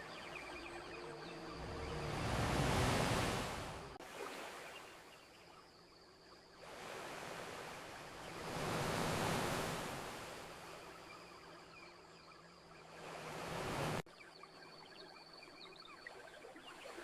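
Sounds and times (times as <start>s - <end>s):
ocean waves washing onto beach: 0.0s - 5.0s, 6.6s - 11.0s, 12.8s - 14.0s.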